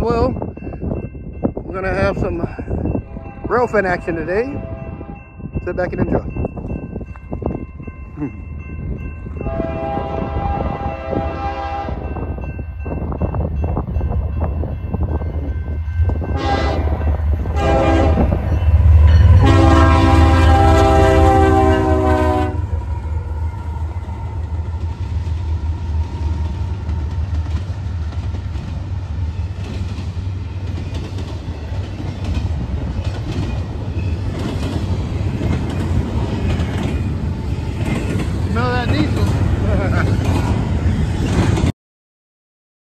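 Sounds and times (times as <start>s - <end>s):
train rumble: 0.0s - 41.7s
train air horn blasts: 4.5s - 5.2s, 9.4s - 12.2s, 16.2s - 22.8s.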